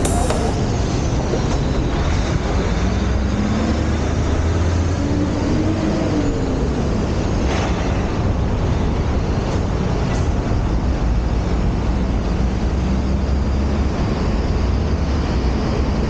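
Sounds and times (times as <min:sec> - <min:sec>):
bicycle road noise: 0:00.0 - 0:00.6.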